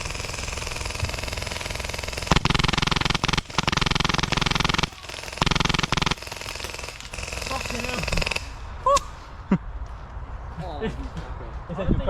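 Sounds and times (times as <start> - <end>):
airsoft gun full-auto bursts: 0.0 - 8.6.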